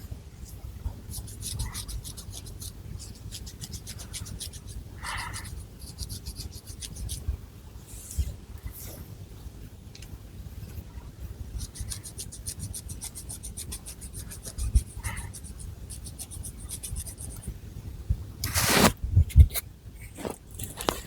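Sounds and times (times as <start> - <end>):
fingernails scratching hair: 1.1 - 7.2, 11.6 - 17.5, 18.4 - 19.0
hair rustling sweep: 18.4 - 19.0.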